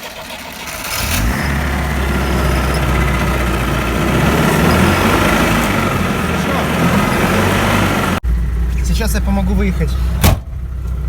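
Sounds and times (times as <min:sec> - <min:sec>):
jeep engine revving under load: 0:00.6 - 0:08.7.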